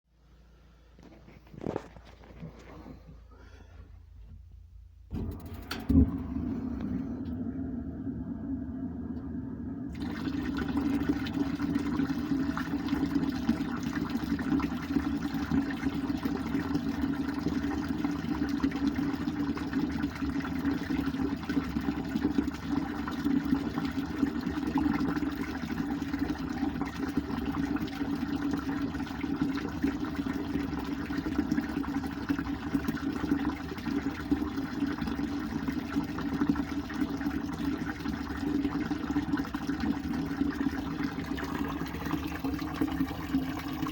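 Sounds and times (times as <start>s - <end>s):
gas water heater rushing hum: 0.5s - 43.9s.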